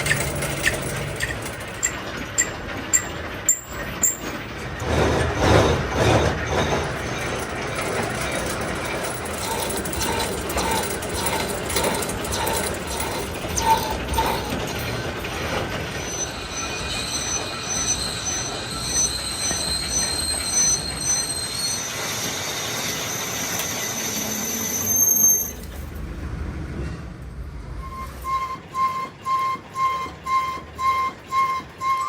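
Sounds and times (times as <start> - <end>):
machine tool cutting metal: 0.0 - 20.8
high-pitched metallic squeal: 0.0 - 25.9, 27.7 - 32.0.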